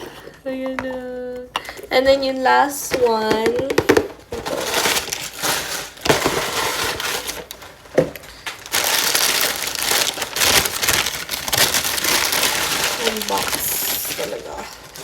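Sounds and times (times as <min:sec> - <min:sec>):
packaging crinkling: 0:03.8 - 0:15.0.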